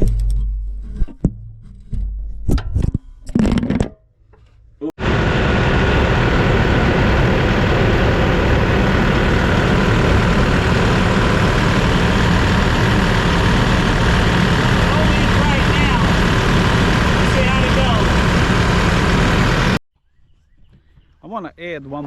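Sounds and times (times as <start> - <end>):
tractor diesel engine running: 5.0 - 19.8.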